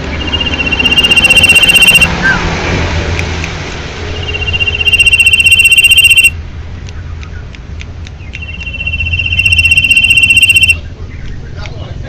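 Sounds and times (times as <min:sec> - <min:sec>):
bird singing rapid trill: 0:00.0 - 0:02.4, 0:04.1 - 0:06.4, 0:08.2 - 0:11.4.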